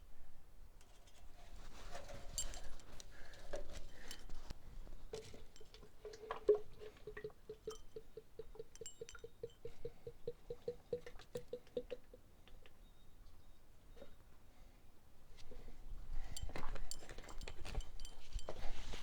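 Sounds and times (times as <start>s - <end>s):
oil glugging from bottle: 5.1s - 12.1s.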